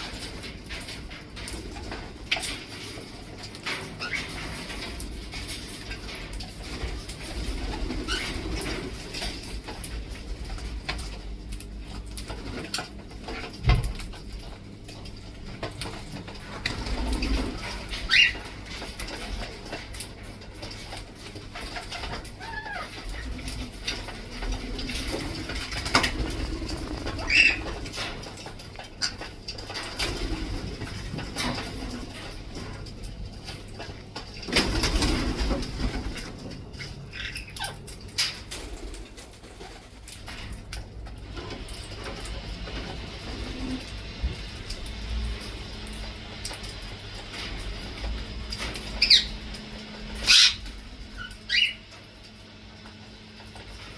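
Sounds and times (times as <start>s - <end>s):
parrots calling: 4.0s - 4.4s, 17.9s - 18.5s, 21.8s - 23.2s, 27.1s - 27.8s, 36.8s - 37.8s, 48.8s - 51.9s.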